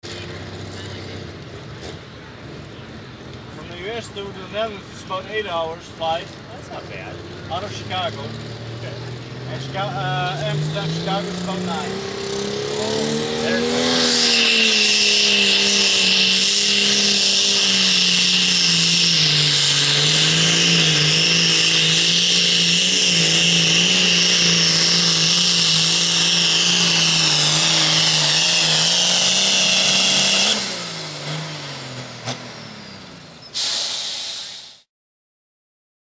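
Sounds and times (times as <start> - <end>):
tractor engine at full power: 0.0 - 34.9
high whine: 9.9 - 34.8
loud burst: 33.6 - 34.8.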